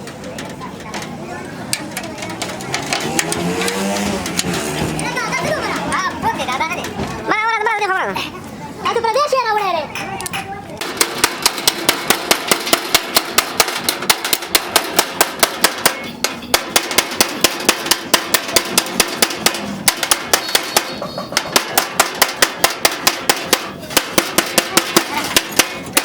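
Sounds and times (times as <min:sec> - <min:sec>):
hammer striking sheet metal: 0:01.7 - 0:06.0, 0:10.0 - 0:26.0.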